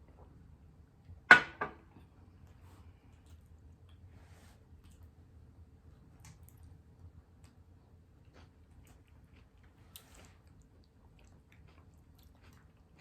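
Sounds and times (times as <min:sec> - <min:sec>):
close-up chewing: 0:05.9 - 0:13.0.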